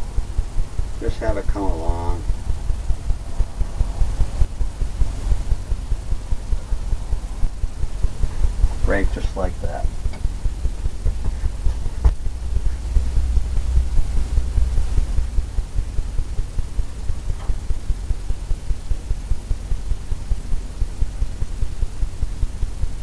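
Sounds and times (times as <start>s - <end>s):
low fluttering rumble: 0.0s - 23.0s.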